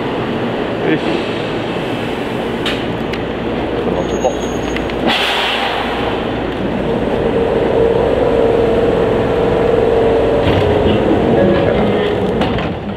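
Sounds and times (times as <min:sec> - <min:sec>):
electric train running: 0:04.8 - 0:12.9
humming tone: 0:06.7 - 0:12.7.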